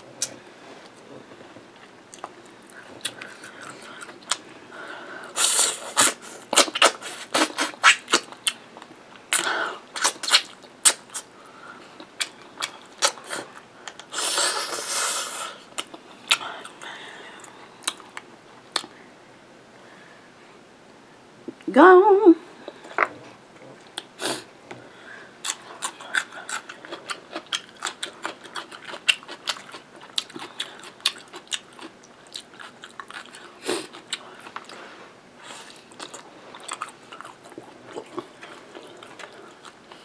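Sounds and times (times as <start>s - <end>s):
chewing and lip-smacking: 1.8s - 4.4s, 12.0s - 14.1s, 15.7s - 19.0s, 25.4s - 34.8s, 35.5s - 40.0s.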